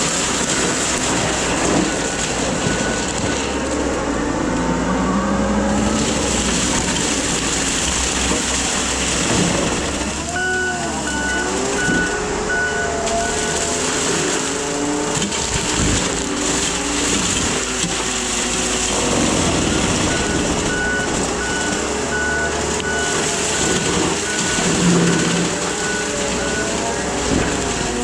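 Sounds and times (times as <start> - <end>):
skid steer engine running hard: 0.0 - 28.0
backup alarm beeping: 1.8 - 3.6, 10.3 - 14.9, 19.5 - 26.8.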